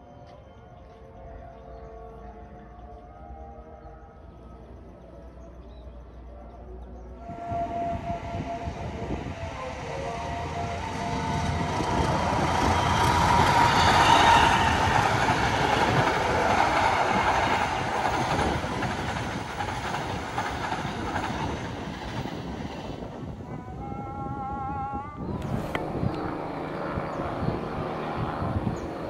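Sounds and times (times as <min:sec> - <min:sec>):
train wheels rumbling on rail: 0:07.2 - 0:24.5.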